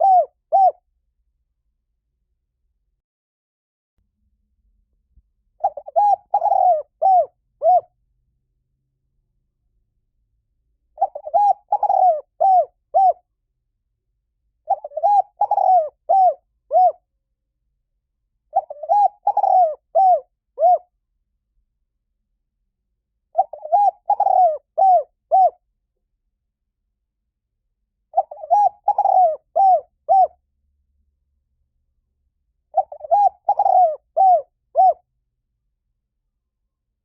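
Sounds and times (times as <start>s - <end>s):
dove cooing: 0.0s - 0.8s, 5.6s - 7.9s, 11.0s - 13.2s, 14.7s - 17.0s, 18.5s - 20.9s, 23.3s - 25.6s, 28.1s - 30.4s, 32.7s - 35.0s.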